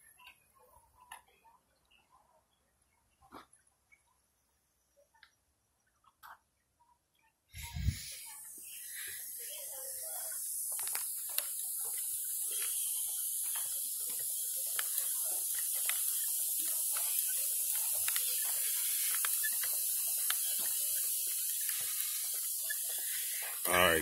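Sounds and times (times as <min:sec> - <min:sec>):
steady high hiss: 0:07.6 - 0:24.0
small irregular clicks: 0:10.6 - 0:23.7.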